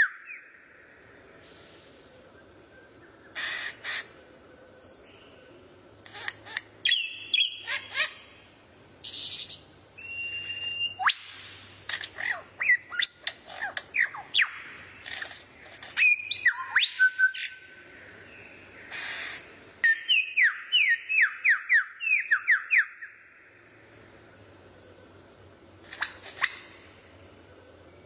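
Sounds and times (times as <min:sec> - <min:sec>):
songbird whistling song: 0:00.0 - 0:01.8, 0:06.5 - 0:08.2, 0:09.0 - 0:17.7, 0:18.3 - 0:23.3, 0:25.9 - 0:27.1.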